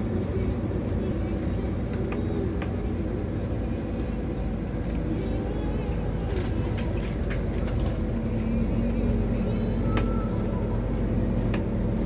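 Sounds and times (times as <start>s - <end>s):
truck diesel engine under load: 0.0s - 12.0s.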